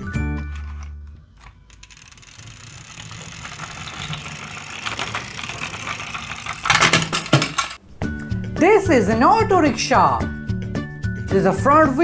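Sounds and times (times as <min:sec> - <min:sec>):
clatter of knocks: 0:00.0 - 0:08.4
toy wheels rolling on track: 0:00.0 - 0:10.0.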